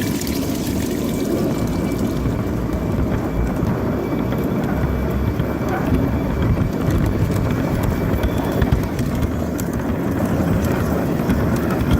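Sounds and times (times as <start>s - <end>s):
model locomotive rumbling: 0.0s - 11.9s
wheels clicking on rails: 0.0s - 11.9s.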